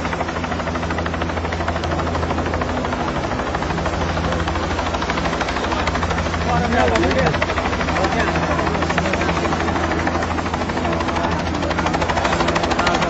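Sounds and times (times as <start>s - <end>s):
helicopter rotor chopping: 0.0s - 13.0s.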